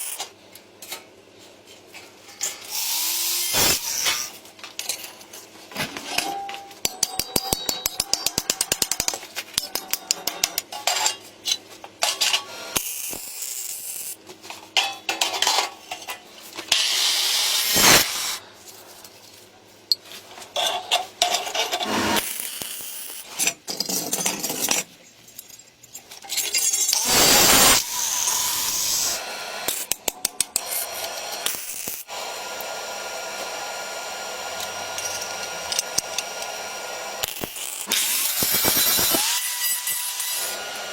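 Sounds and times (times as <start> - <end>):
sharp clicks of hand tools: 6.8 - 14.1, 29.7 - 32.1, 34.6 - 36.6, 37.2 - 40.5.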